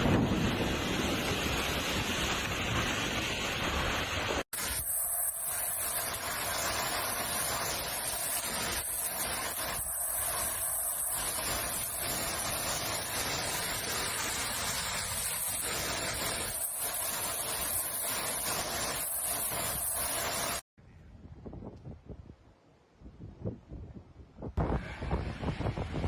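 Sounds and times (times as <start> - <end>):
rain: 0.0 - 20.6
wind: 0.0 - 26.0.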